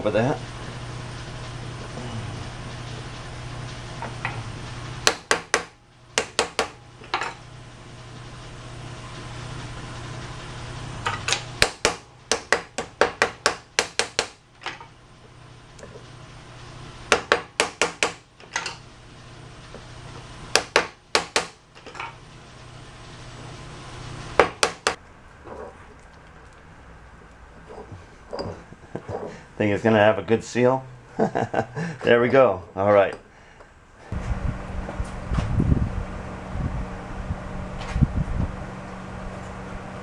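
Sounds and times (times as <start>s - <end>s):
hammer tapping: 5.0s - 6.8s, 11.3s - 14.4s.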